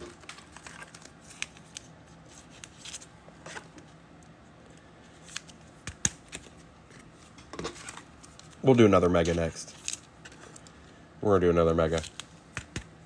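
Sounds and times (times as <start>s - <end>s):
cards rustling: 0.0s - 4.0s, 5.0s - 10.9s, 11.7s - 13.0s
card sleeves clicking: 5.3s - 6.6s, 12.0s - 13.0s.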